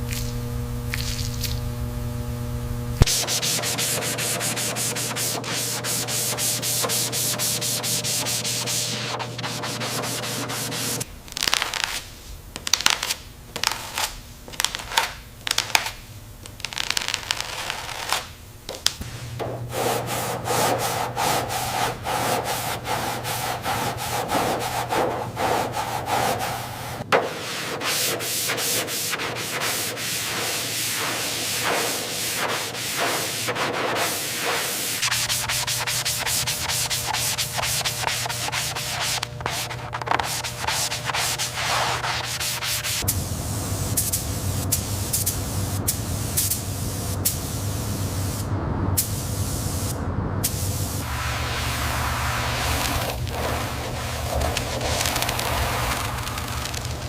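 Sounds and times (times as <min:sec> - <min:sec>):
sanding rubbing strokes: 0:03.1 - 0:12.0, 0:19.4 - 0:43.1, 0:51.0 - 0:57.0.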